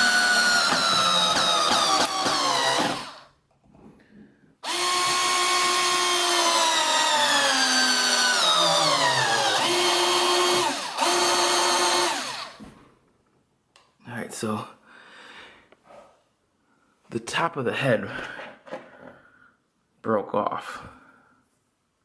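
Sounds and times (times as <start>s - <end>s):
power drill driving a screw: 0.0s - 3.3s, 4.6s - 12.6s.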